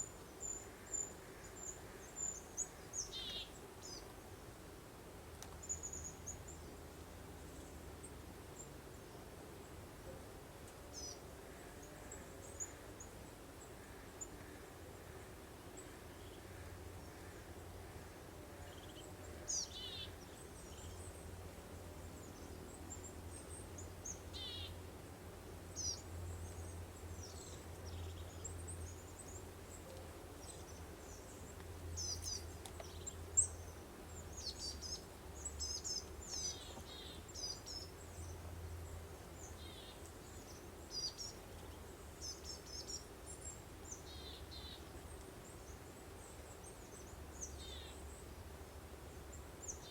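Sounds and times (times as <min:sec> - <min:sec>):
soft breeze: 0:00.0 - 0:49.9
songbirds chirping: 0:00.0 - 0:49.9.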